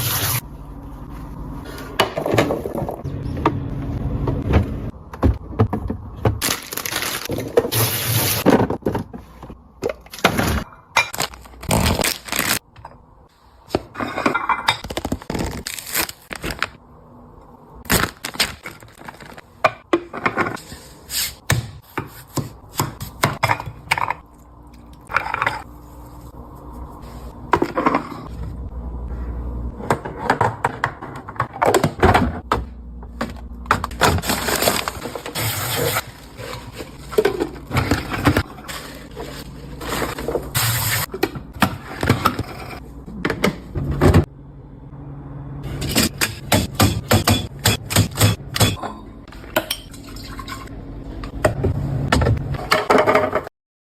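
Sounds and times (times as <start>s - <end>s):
containers clattering on fridge shelves: 4.2s - 11.4s, 29.8s - 35.4s, 36.1s - 40.5s, 51.3s - 53.5s.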